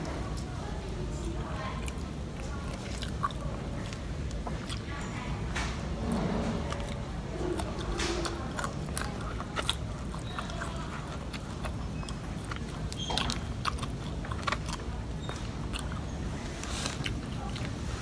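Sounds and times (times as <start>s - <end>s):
person biting and chewing: 6.3s - 18.0s.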